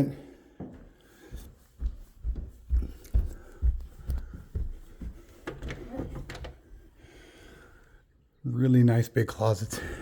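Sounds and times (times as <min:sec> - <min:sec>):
footsteps in a house: 0:00.0 - 0:08.0.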